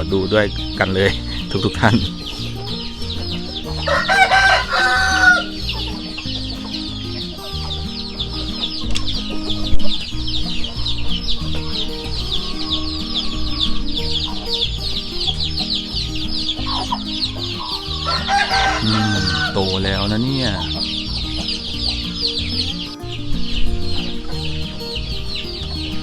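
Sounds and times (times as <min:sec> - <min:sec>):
chickens clucking and chirping: 0:00.0 - 0:26.0
rooster crowing: 0:02.2 - 0:07.8, 0:10.6 - 0:15.6, 0:16.5 - 0:20.9.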